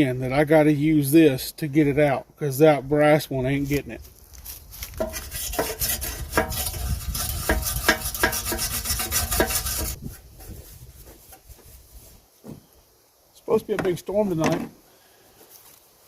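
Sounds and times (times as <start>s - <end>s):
wire brush scraping sheet metal: 4.8s - 12.2s.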